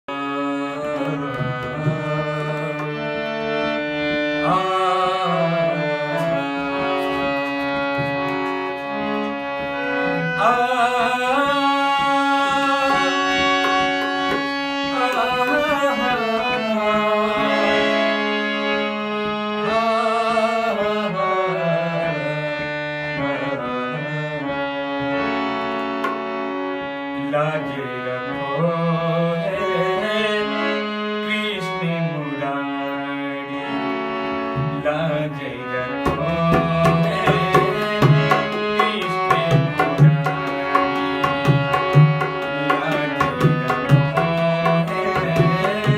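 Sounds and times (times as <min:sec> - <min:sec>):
hand drum rhythm: 0:06.9 - 0:09.7, 0:36.0 - 0:45.9.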